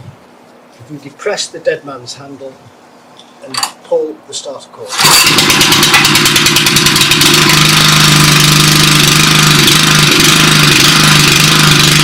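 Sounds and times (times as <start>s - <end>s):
petrol engine running: 4.9s - 12.0s.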